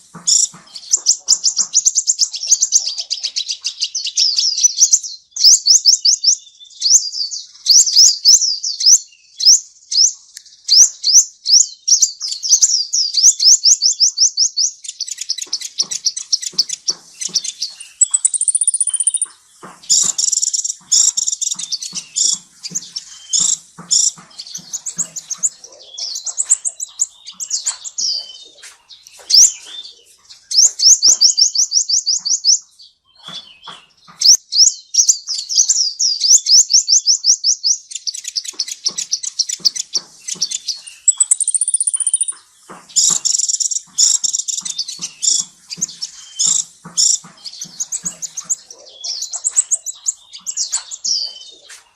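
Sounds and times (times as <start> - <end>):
songbird chirping: 0.0 - 51.9
faint clicks and taps: 15.2 - 31.4, 38.2 - 51.9.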